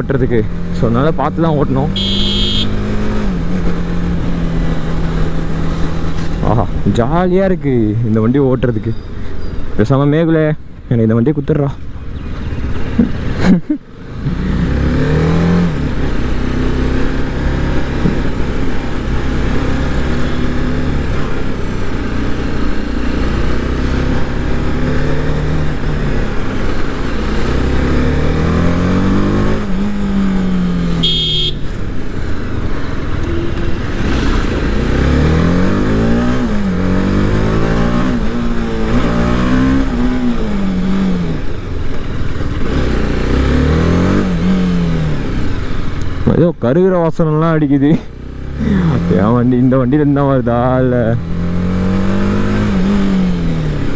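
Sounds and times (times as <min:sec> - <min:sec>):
motorcycle engine accelerating: 0:00.0 - 0:07.3, 0:11.9 - 0:46.3, 0:48.0 - 0:53.9
short high beep: 0:02.0 - 0:02.7, 0:31.0 - 0:31.6.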